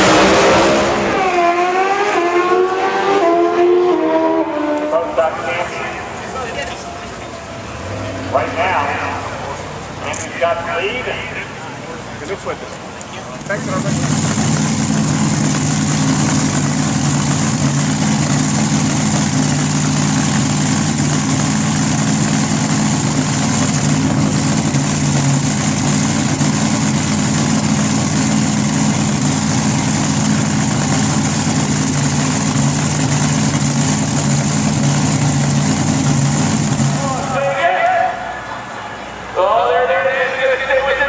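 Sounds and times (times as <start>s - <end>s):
engine idling: 5.2s - 37.7s.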